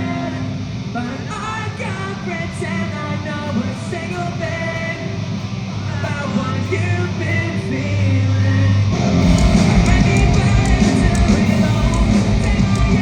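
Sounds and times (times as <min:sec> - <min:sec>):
person singing: 0:00.0 - 0:13.0
punk rock band playing live: 0:00.0 - 0:13.0.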